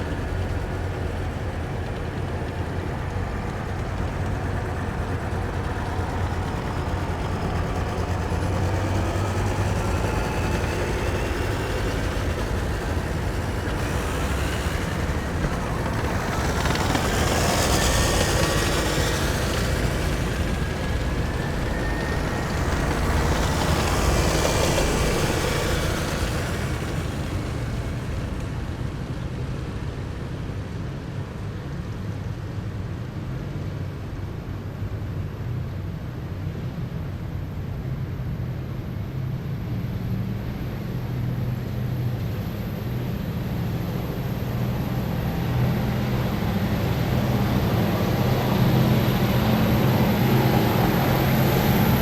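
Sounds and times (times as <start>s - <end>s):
rising whine: 0.0s - 29.1s
heavy vehicle engines rumbling: 0.0s - 32.0s, 32.6s - 52.0s.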